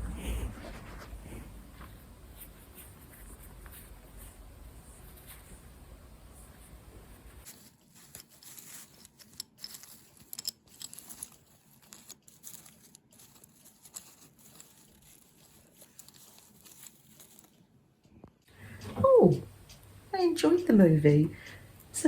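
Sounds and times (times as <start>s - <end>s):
fabric rustling: 0.0s - 17.6s.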